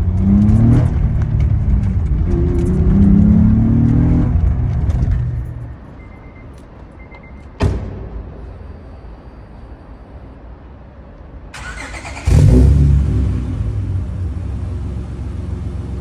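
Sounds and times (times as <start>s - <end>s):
loud deep exhaust revving: 0.0s - 5.1s, 12.2s - 16.0s
sharp thump: 7.6s - 8.6s
car engine idling: 11.6s - 16.0s.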